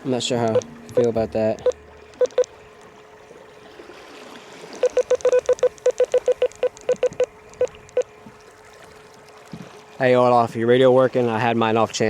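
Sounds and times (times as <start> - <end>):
electronic key beeps: 0.4 - 2.5, 4.8 - 8.1.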